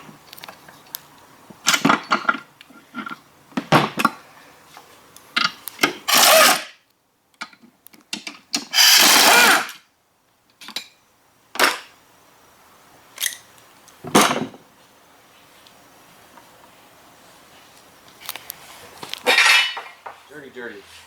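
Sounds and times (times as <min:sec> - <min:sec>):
power tool running: 0:06.1 - 0:06.7, 0:08.7 - 0:09.8.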